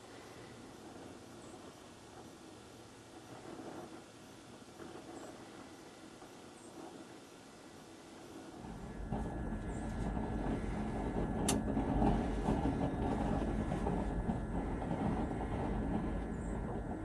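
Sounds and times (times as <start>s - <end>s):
distant heavy vehicle rumble: 8.6s - 17.0s.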